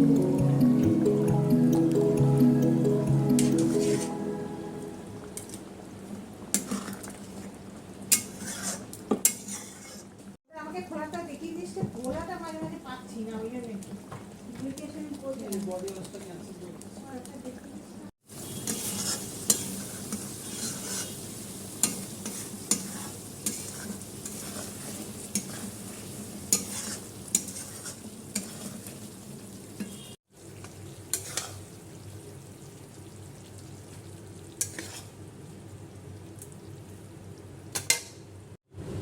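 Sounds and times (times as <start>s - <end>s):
food sizzling in a pan: 3.4s - 11.6s, 12.4s - 38.5s
spoon scraping and knocking pan: 21.8s - 25.8s, 26.5s - 28.9s.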